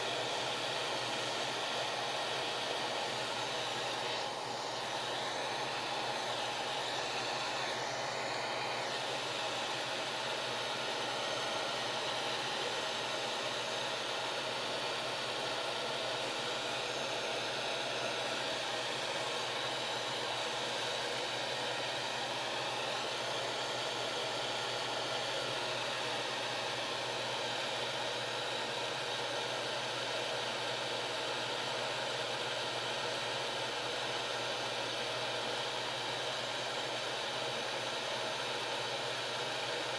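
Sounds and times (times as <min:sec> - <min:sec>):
hot air gun fan hissing: 0:00.0 - 0:29.2.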